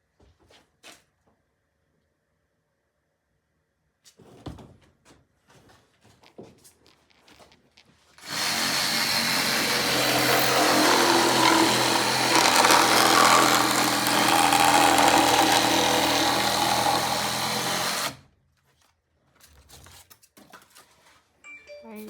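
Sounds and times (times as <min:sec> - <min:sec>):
reciprocating saw cutting foam: 0:08.2 - 0:18.3.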